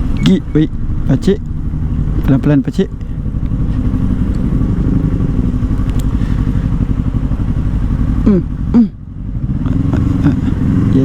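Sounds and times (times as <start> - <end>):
throttle blips: 0.0 - 0.7
motorcycle engine running: 0.0 - 11.0.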